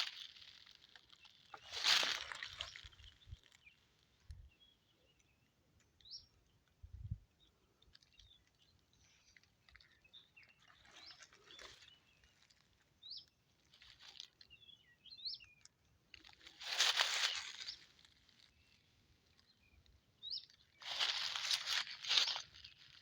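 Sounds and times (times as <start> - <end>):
brush rustling: 0.0 - 3.6, 16.2 - 18.8, 20.8 - 23.0.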